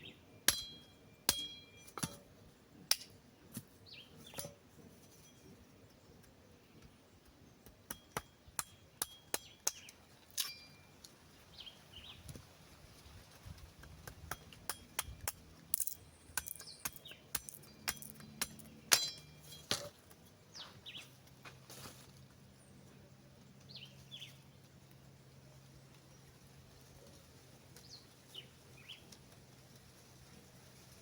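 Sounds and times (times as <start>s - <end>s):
wooden sticks clicking and knocking: 13.3s - 20.3s.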